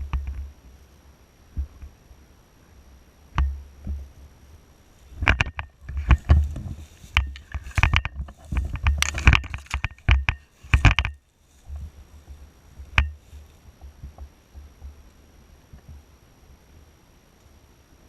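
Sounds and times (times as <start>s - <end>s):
irregular sharp clicks and knocks: 0.0s - 0.5s, 3.3s - 4.1s, 5.1s - 11.2s, 12.8s - 13.2s
low thumping rumbles: 5.1s - 15.0s.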